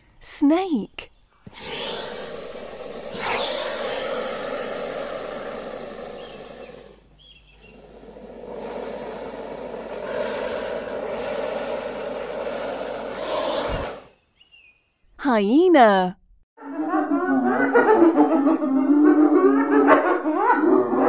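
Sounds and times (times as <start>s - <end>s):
snake hissing: 1.4s - 14.2s.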